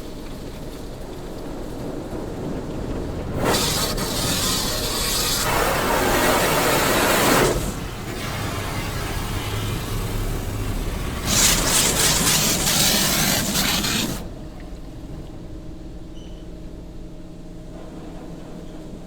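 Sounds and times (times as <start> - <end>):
car wash water spray hissing: 3.3 - 14.4.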